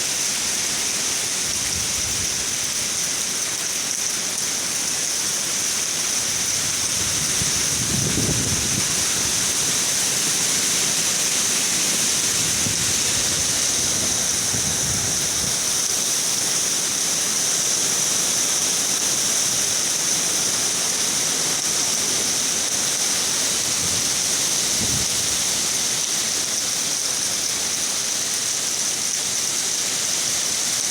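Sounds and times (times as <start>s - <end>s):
heavy rain hissing: 0.0s - 30.9s
wind gusting: 6.5s - 9.8s.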